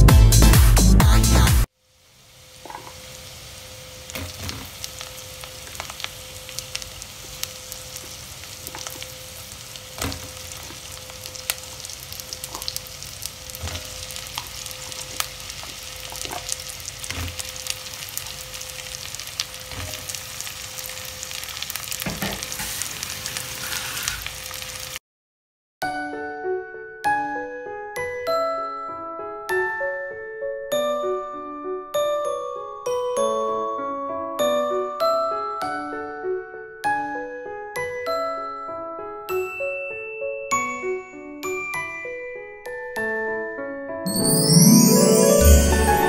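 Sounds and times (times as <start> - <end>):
vegetables sizzling in butter: 1.9 - 25.0.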